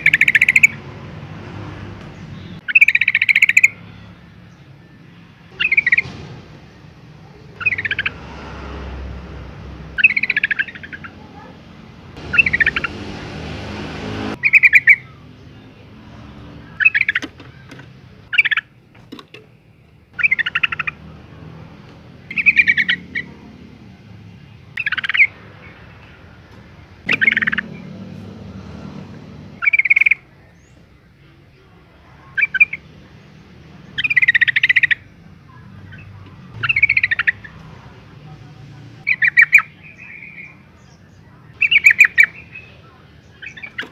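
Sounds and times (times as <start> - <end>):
bulbul calling: 0.0 - 1.0, 2.2 - 4.1, 5.5 - 8.3, 9.9 - 11.6, 12.2 - 15.3, 16.6 - 18.8, 20.1 - 21.4, 22.2 - 23.6, 24.6 - 26.2, 27.0 - 28.5, 29.5 - 30.9, 32.2 - 33.0, 33.8 - 37.7, 39.0 - 43.9.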